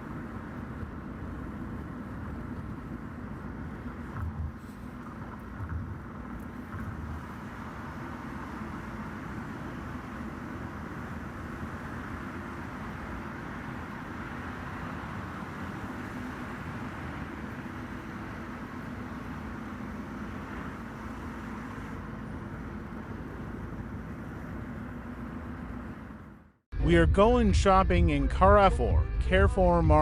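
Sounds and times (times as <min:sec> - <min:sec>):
low bumps: 0:00.0 - 0:08.0
car driving on highway: 0:00.0 - 0:30.0.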